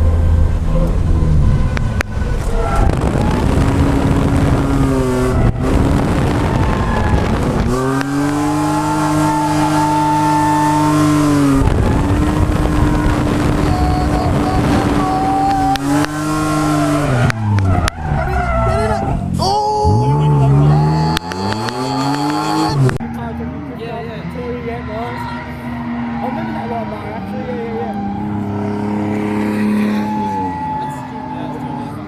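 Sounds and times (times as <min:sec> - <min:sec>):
car engine revving hard: 0:00.0 - 0:32.0
tyre squeal: 0:04.6 - 0:32.0.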